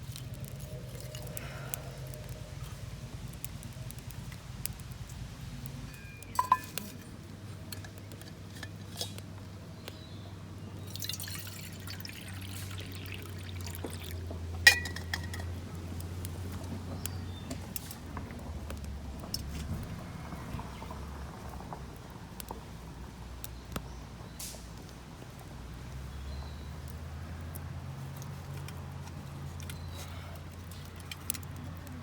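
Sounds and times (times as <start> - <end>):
cup clinking: 5.9 - 7.0, 11.0 - 12.5, 14.7 - 15.5
liquid being poured: 10.8 - 15.4.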